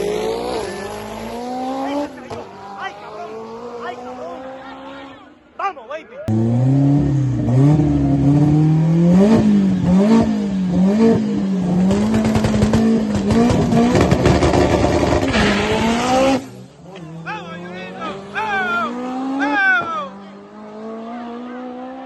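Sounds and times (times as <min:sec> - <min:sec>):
racing car engine revving: 0:00.0 - 0:05.2, 0:06.3 - 0:22.0.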